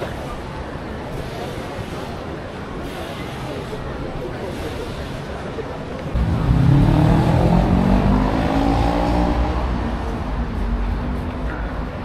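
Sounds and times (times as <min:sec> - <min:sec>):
car engine revving: 0:06.2 - 0:09.9.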